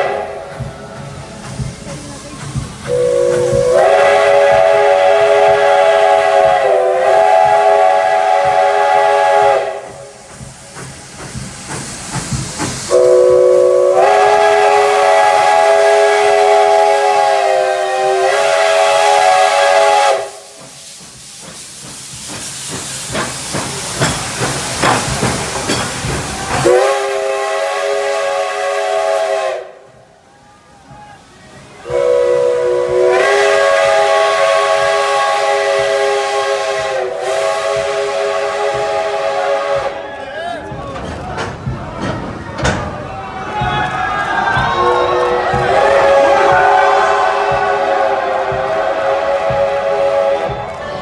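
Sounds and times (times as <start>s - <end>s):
steam locomotive whistle: 0.0s - 0.6s, 2.9s - 10.2s, 12.9s - 20.7s, 26.6s - 30.0s, 31.8s - 40.1s, 44.4s - 51.0s
steam hissing: 0.0s - 51.0s.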